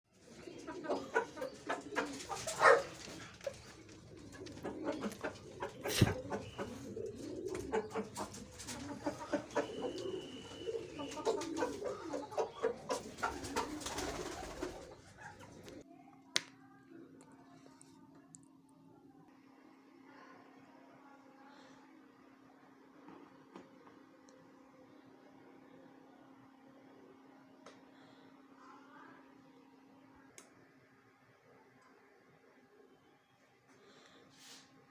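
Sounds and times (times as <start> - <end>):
pigeons cooing: 0.1 - 15.8
faint hum: 0.1 - 34.9.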